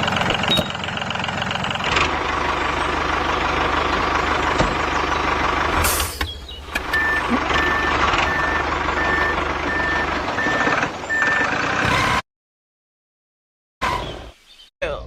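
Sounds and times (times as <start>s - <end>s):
diesel engine running: 0.0s - 12.2s
reversing alarm beeping: 6.9s - 12.2s.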